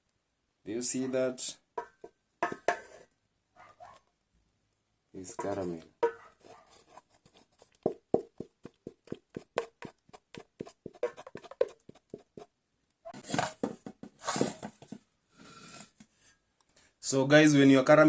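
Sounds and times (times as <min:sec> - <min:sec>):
caramel clicking and tapping: 0:01.8 - 0:02.9, 0:07.2 - 0:12.5
scraping: 0:05.2 - 0:07.8.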